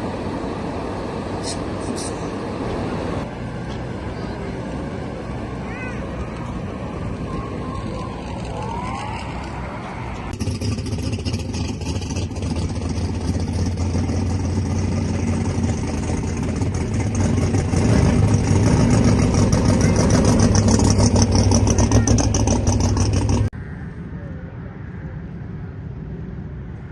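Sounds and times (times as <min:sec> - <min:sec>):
car engine droning: 0:00.0 - 0:26.9.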